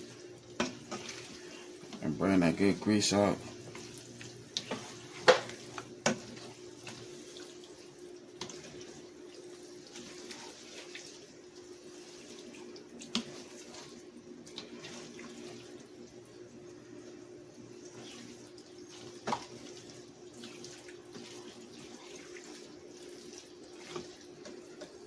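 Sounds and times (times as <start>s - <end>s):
meat sizzling in a pan: 0.0s - 16.0s.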